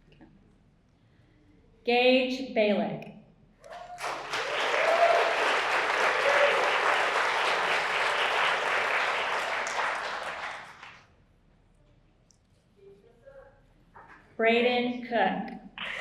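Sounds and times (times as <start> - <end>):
people cheering: 3.6 - 11.0
audience applauding: 3.7 - 11.0.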